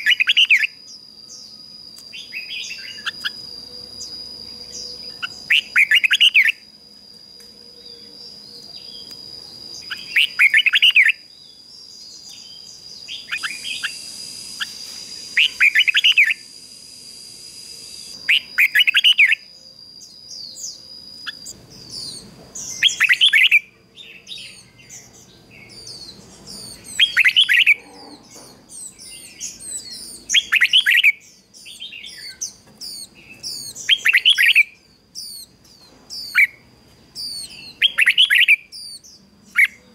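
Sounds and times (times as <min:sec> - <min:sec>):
bird singing warbled phrase: 0:00.0 - 0:06.6, 0:07.8 - 0:16.4, 0:37.2 - 0:39.8
quick high bird chirps: 0:13.0 - 0:16.5.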